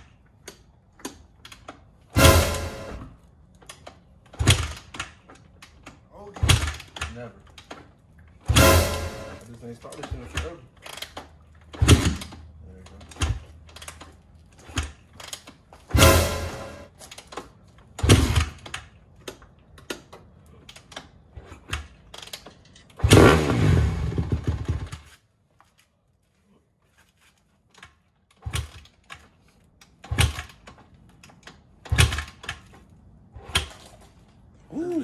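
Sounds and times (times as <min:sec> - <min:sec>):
dirt bike being kick-started: 0:03.6 - 0:25.3, 0:27.1 - 0:34.3
dirt bike engine running: 0:08.5 - 0:09.4, 0:15.9 - 0:16.9, 0:23.0 - 0:25.0.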